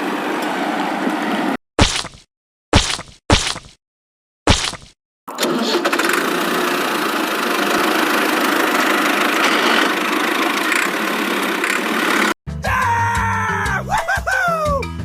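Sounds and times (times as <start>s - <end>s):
engine-like running sound: 5.3s - 12.4s.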